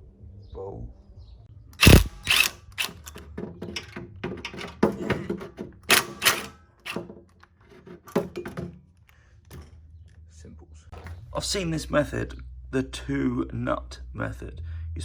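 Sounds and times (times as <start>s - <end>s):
metal hand tools clanking: 1.8s - 7.1s.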